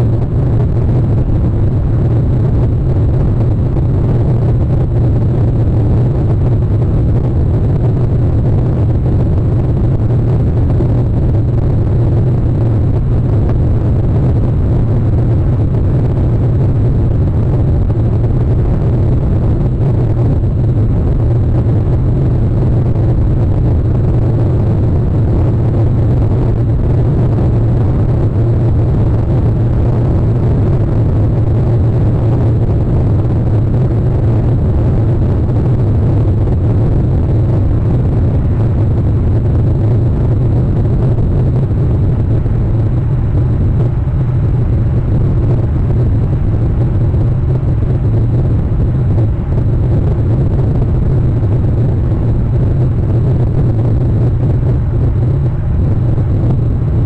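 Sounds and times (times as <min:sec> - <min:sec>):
steady low rumbling: 0:00.0 - 0:57.0.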